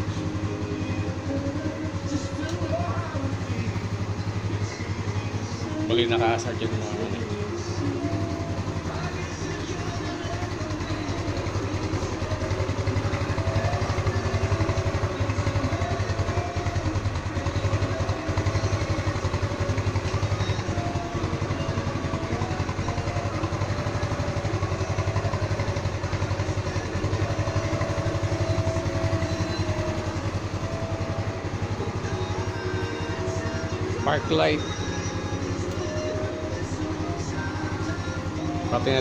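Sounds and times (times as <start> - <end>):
motorcycle engine idling: 0.0 - 39.0.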